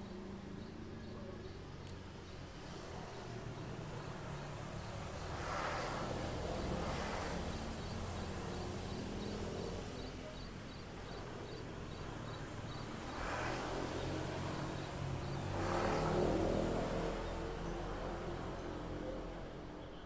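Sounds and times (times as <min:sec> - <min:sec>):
traffic hum: 0:00.0 - 0:20.0
vehicles passing: 0:00.0 - 0:20.0
songbird chirping: 0:07.8 - 0:17.9.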